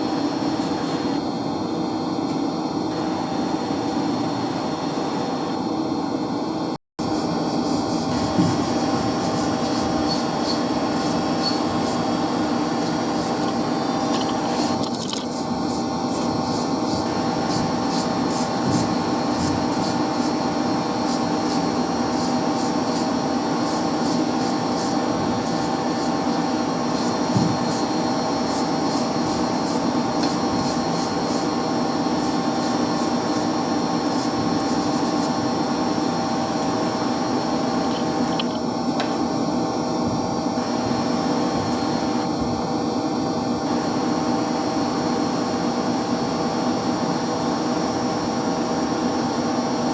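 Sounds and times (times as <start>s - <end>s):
electric pump motors humming: 0.0s - 49.9s.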